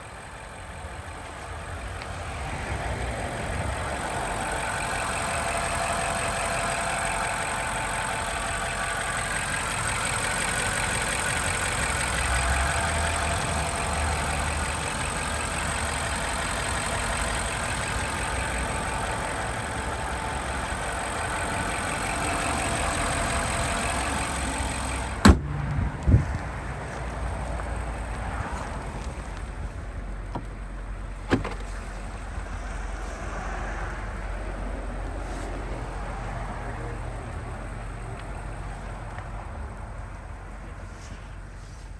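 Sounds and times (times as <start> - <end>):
car engine idling: 0.0 - 41.9
short thumps: 25.2 - 26.4.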